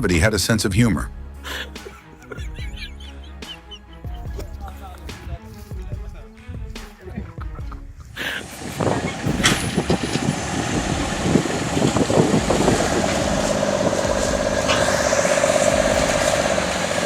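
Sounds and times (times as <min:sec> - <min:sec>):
knocks and clatter: 0:04.2 - 0:17.0
heavy truck engine running: 0:08.4 - 0:17.0.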